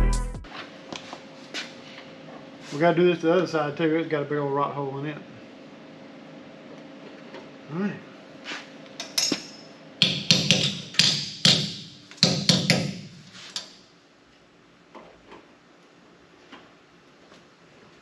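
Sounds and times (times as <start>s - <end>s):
hammer striking sheet metal: 10.0s - 13.2s.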